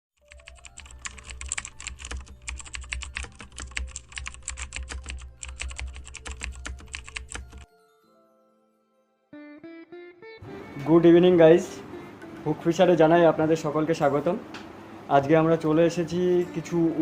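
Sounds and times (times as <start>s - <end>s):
computer keyboard typing: 0.2s - 7.7s.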